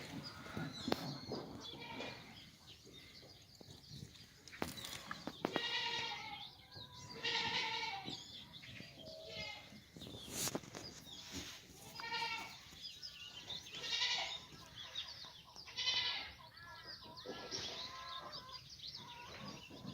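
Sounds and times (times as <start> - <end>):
goats bleating: 5.5 - 6.4, 7.2 - 8.1, 11.9 - 12.6, 13.7 - 14.5, 15.7 - 16.3.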